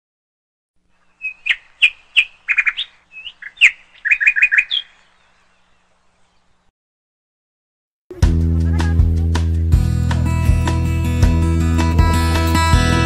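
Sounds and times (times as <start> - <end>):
songbird chirping and trilling: 0.9 - 6.7.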